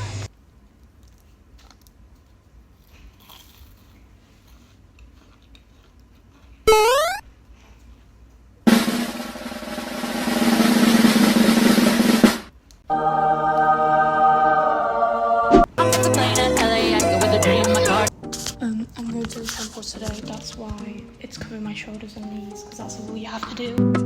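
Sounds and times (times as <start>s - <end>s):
snare drum roll: 8.7s - 12.5s.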